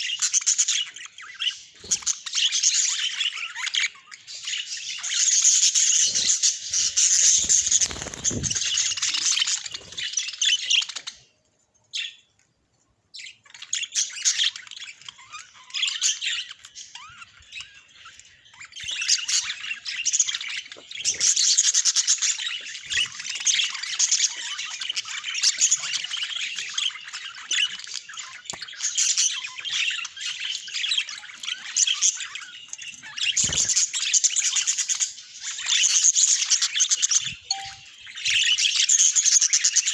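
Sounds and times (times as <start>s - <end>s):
budgerigars chattering and chirping: 0.0s - 11.3s.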